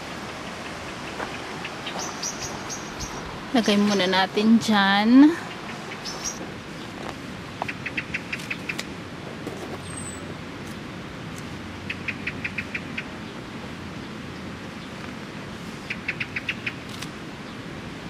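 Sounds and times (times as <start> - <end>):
steady background noise: 0.0 - 18.0
bird chirping: 0.4 - 4.2, 5.4 - 6.9.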